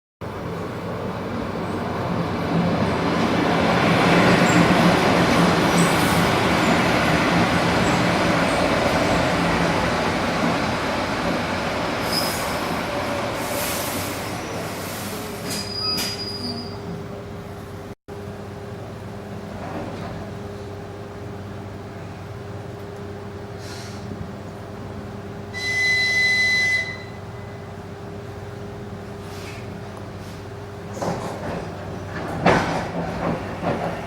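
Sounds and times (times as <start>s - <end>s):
electric train rolling on rails: 0.2s - 17.9s, 18.5s - 34.0s
high wheel squeals: 12.0s - 12.8s, 15.2s - 17.0s, 25.6s - 27.7s.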